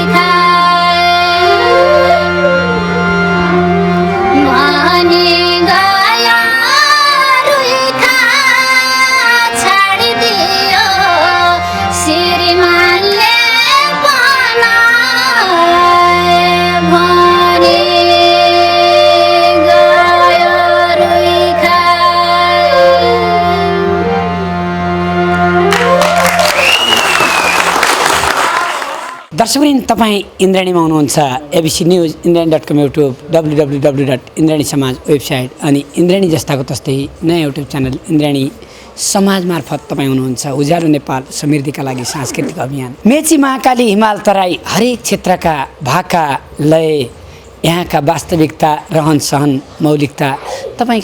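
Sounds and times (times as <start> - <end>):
steady held drone: 0.1 - 15.1
wordless singing: 3.8 - 23.9
applause: 25.7 - 29.3.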